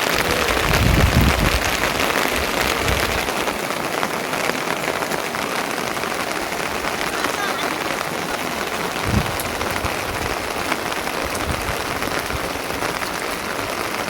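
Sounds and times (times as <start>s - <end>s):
rain falling: 0.0s - 14.0s
low rumble: 9.0s - 10.4s.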